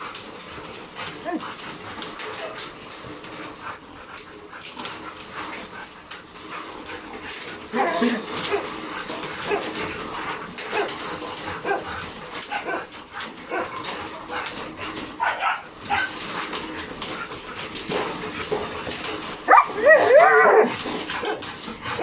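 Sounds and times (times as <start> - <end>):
dogs barking and yipping: 0.0 - 22.0
dogs whining: 1.1 - 2.7, 7.4 - 10.0, 19.0 - 22.0.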